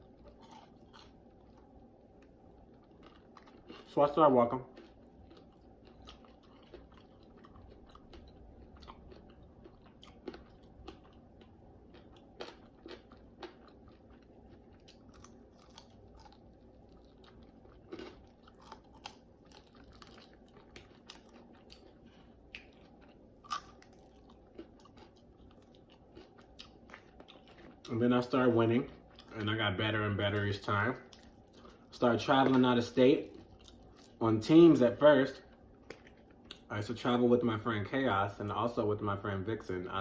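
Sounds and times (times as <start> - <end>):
wet chewing mouth sounds: 4.7 - 27.9.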